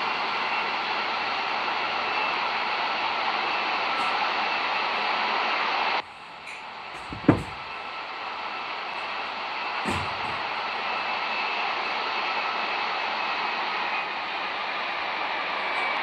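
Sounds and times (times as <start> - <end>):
airliner cabin roar: 0.0 - 16.0
loud thump: 7.0 - 7.6, 9.8 - 10.4.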